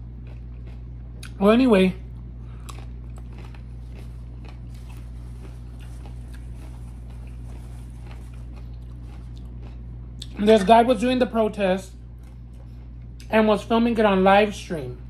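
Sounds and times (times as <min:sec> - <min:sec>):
chewing with mouth clicks: 0:00.0 - 0:01.4, 0:02.0 - 0:10.7
steady low hum: 0:00.0 - 0:15.0.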